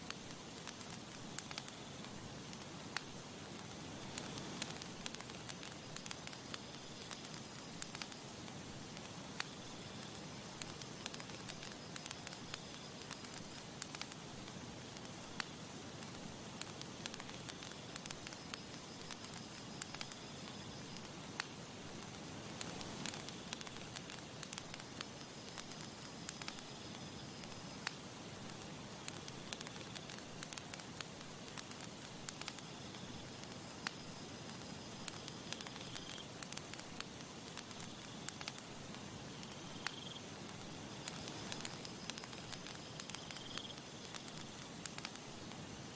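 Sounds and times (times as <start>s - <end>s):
campfire crackling and popping: 0.0s - 45.9s.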